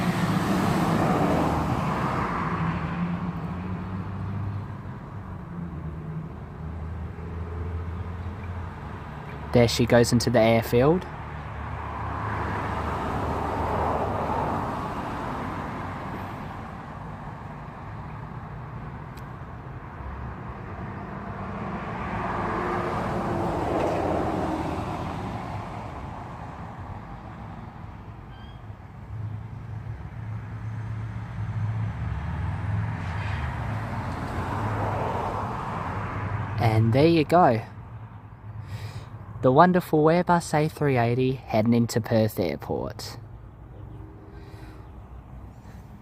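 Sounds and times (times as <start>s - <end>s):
road traffic: 0.0s - 46.0s.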